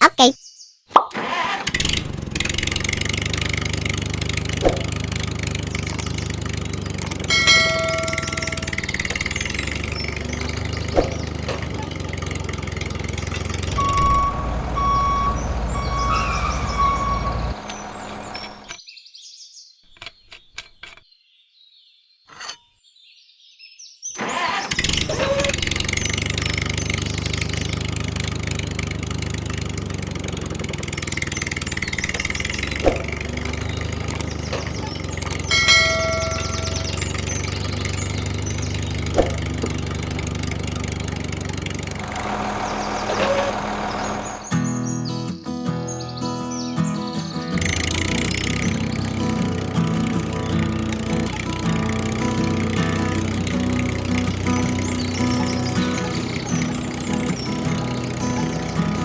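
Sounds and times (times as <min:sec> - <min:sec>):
model tractor motor running: 0:01.2 - 0:18.8, 0:24.2 - 0:44.8, 0:47.5 - 0:59.0
clicks: 0:05.7 - 0:12.0.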